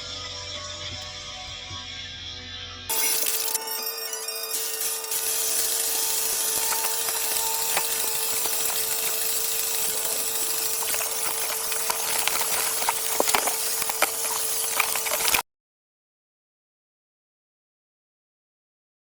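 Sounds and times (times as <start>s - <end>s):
power tool motor running: 2.9s - 15.4s.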